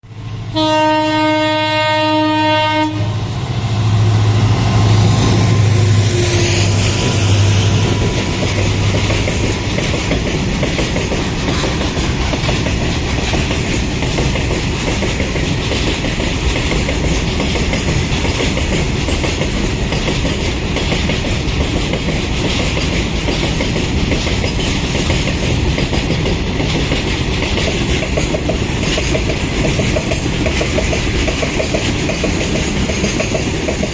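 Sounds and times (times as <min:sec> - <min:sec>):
diesel locomotive engine: 0:00.0 - 0:33.9
train wheels clattering on rails: 0:00.4 - 0:33.9
locomotive horn blast: 0:00.5 - 0:03.3, 0:04.4 - 0:07.8.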